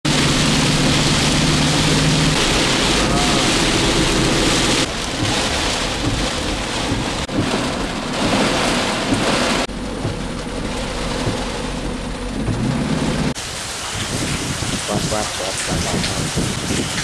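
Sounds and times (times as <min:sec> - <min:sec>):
heavy rain pouring: 0:00.0 - 0:17.0
low rumble: 0:00.1 - 0:13.4
strong wind: 0:00.1 - 0:17.0.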